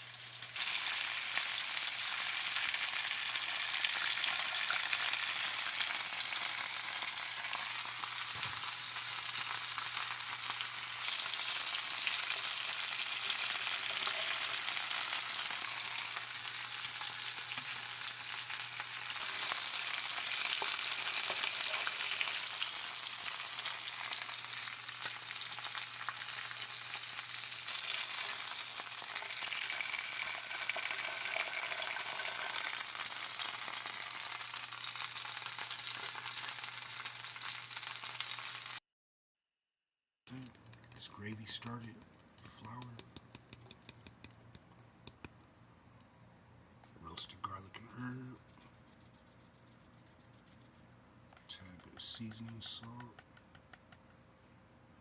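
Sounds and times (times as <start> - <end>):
chicken frying in hot oil: 0.0 - 38.8.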